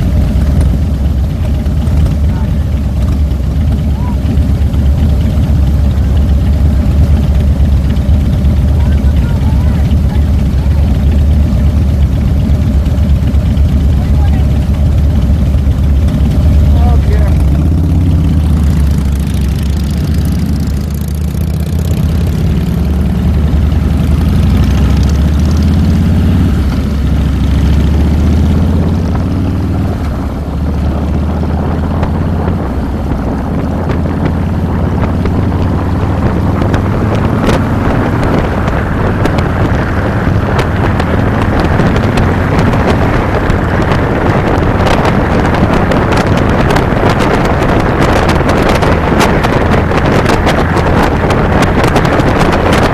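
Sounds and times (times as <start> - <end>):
motorcycle engine running: 0.0 - 52.9
wind rushing over microphone: 15.2 - 52.9
wind buffeting clicks: 30.0 - 52.9.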